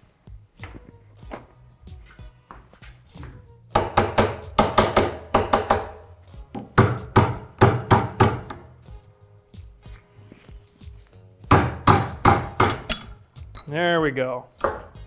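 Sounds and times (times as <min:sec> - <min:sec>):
hammer striking metal: 0:03.2 - 0:08.8, 0:11.5 - 0:13.8, 0:14.6 - 0:15.0.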